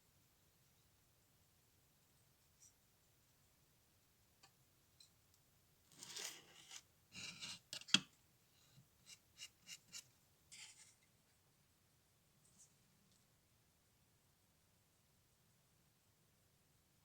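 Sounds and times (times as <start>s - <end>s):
scraping or snipping: 6.0s - 8.1s.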